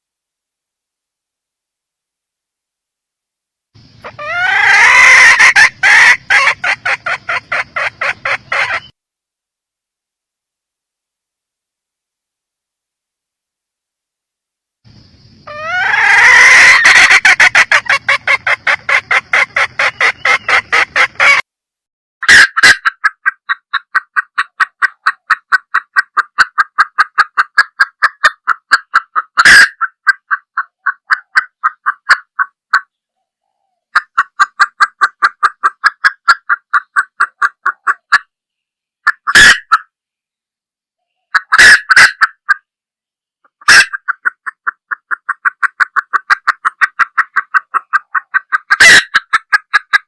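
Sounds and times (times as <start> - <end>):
hen clucking rapidly: 3.8 - 8.9, 15.4 - 21.4, 22.2 - 33.0, 33.9 - 38.3, 39.0 - 39.9, 41.2 - 42.7, 43.5 - 50.0.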